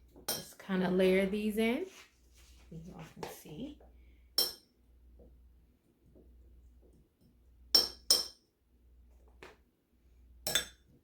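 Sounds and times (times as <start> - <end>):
soft handling sounds: 1.6 - 4.0.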